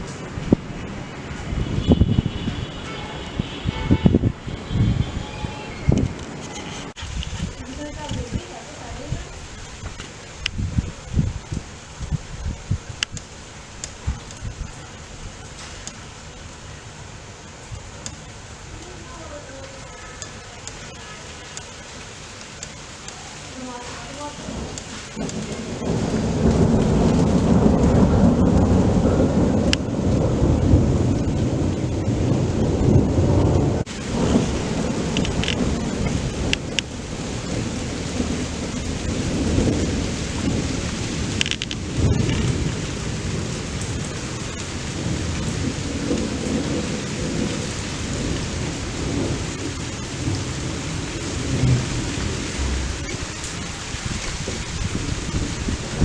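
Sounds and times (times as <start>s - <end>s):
steady rain: 0.0s - 56.0s
thunder rumbling: 0.0s - 56.0s
sharp ticks: 13.0s - 14.5s.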